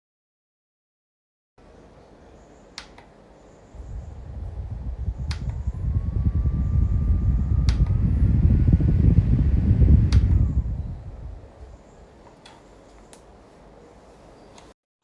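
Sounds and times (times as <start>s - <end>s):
fan motor whine: 1.6s - 14.8s
fan button clicks: 2.8s - 3.2s, 5.0s - 6.2s, 7.0s - 8.1s, 8.8s - 10.9s
air rushing against microphone: 3.7s - 12.0s.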